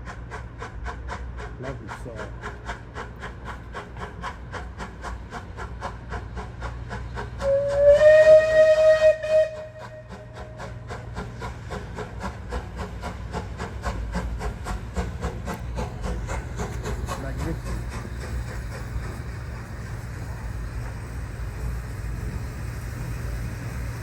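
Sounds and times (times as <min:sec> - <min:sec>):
rhythmic locomotive chuffing: 0:00.0 - 0:24.0
steam locomotive whistle: 0:07.4 - 0:10.6.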